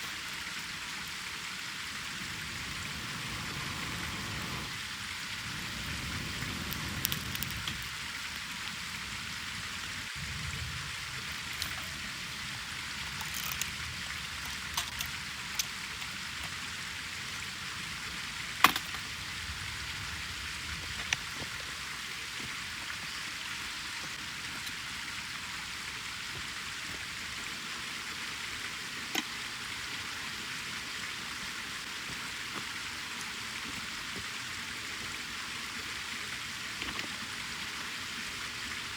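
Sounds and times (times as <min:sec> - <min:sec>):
campfire hissing: 0:00.0 - 0:38.9
fire crackles and pops: 0:05.4 - 0:08.8.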